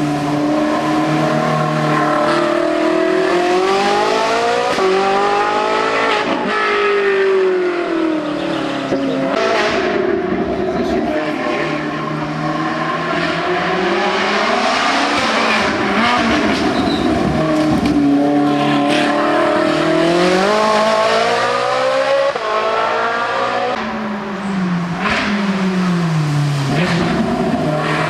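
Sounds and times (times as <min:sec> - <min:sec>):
race car engine revving: 0:00.0 - 0:28.0.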